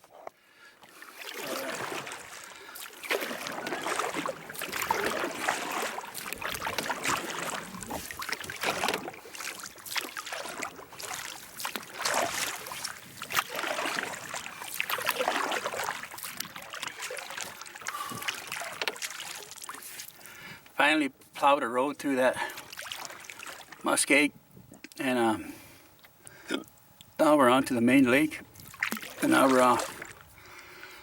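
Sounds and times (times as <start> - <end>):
water splashing against boat hull: 0.8 - 20.3, 22.5 - 23.8, 28.4 - 30.4.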